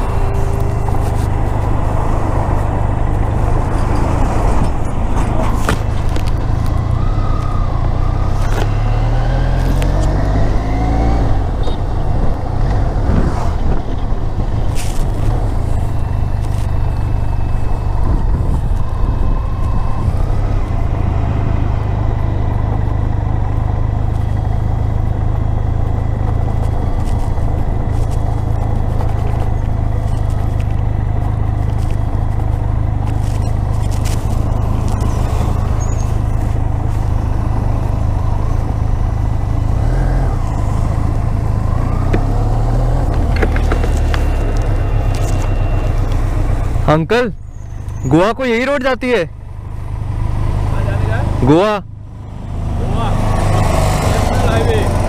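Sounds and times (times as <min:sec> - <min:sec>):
motorcycle engine accelerating: 0:00.0 - 0:48.1, 0:49.3 - 0:55.0
wind buffeting microphone: 0:11.2 - 0:21.6.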